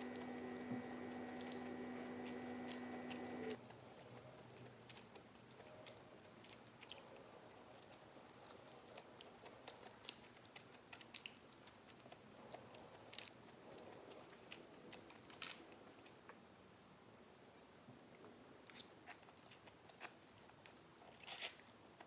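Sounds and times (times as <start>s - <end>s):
chewing with crunches: 2.7s - 15.2s, 19.0s - 22.0s.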